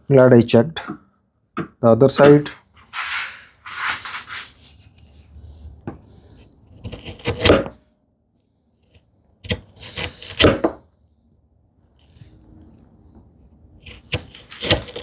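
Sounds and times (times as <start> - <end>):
chisel scraping wood: 2.2 - 4.7, 6.4 - 7.7, 9.5 - 10.7, 13.8 - 15.0.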